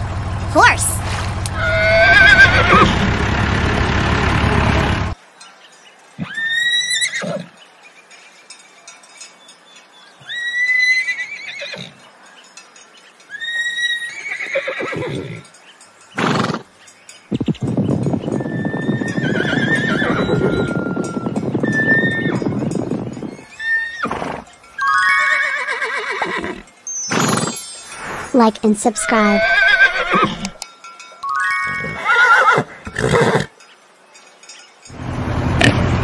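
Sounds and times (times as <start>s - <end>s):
horse whinnying: 1.6s - 3.0s, 6.2s - 7.5s, 10.3s - 12.0s, 13.4s - 15.4s, 16.2s - 16.6s, 18.5s - 20.7s, 21.6s - 22.6s, 23.6s - 27.6s, 29.2s - 30.6s, 31.6s - 33.6s
galloping hooves: 14.4s - 28.3s.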